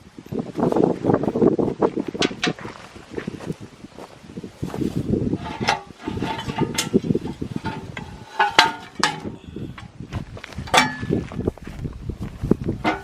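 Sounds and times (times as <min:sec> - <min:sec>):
metal tools clanking: 0:05.4 - 0:09.9, 0:10.7 - 0:11.2.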